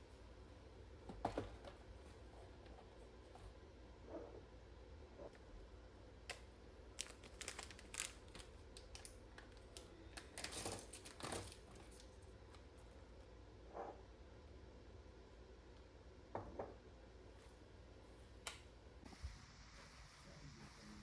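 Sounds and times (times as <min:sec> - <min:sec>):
crinkling rustles: 0:06.3 - 0:12.9.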